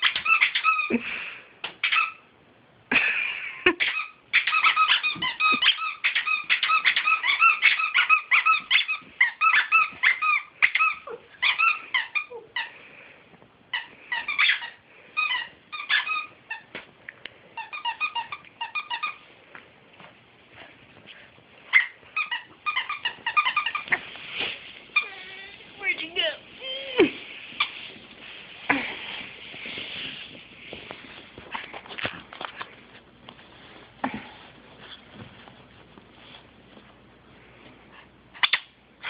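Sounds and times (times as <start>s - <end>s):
squeaky dog toy squeaking: 0.0s - 0.9s, 1.8s - 2.3s, 3.8s - 12.4s, 13.7s - 16.7s, 17.6s - 19.2s, 21.7s - 24.0s.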